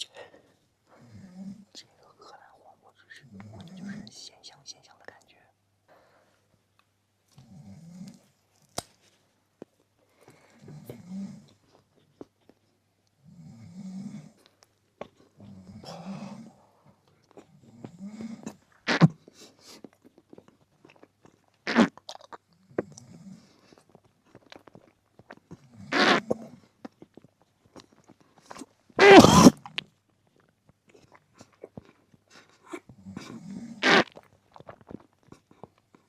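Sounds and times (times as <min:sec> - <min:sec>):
close chewing noises: 0:06.7 - 0:13.3, 0:14.2 - 0:36.0
mouth smacks: 0:23.7 - 0:36.0.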